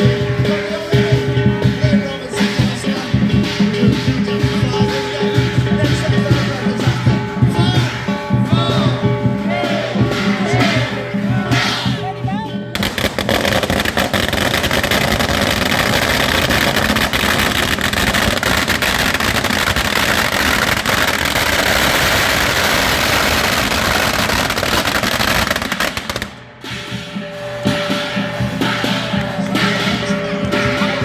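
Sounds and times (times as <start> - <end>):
music: 0.0 - 31.0
firecrackers crackling: 12.7 - 31.0.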